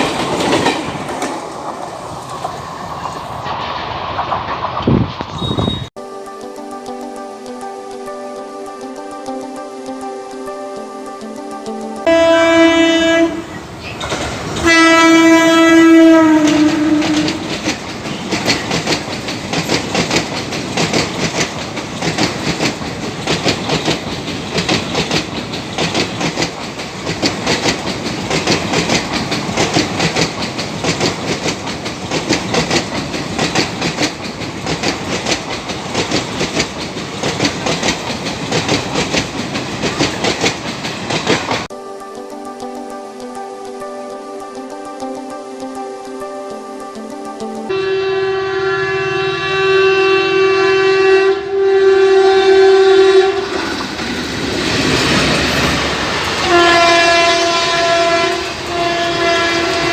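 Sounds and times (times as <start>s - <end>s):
train wheels clacking over rail joints: 0.0s - 5.3s, 13.8s - 41.7s
locomotive horn blasts: 12.0s - 13.6s, 14.6s - 17.5s, 47.7s - 53.6s, 56.4s - 59.9s.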